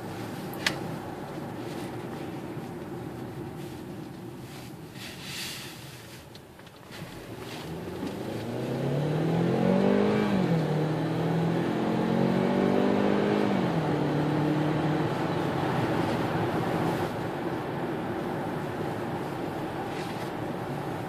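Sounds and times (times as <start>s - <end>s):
car engine accelerating: 7.0s - 21.0s.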